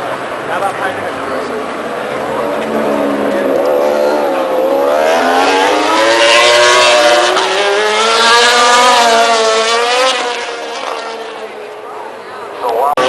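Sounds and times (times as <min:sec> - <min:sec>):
motorcycle engine accelerating: 0:01.3 - 0:11.6.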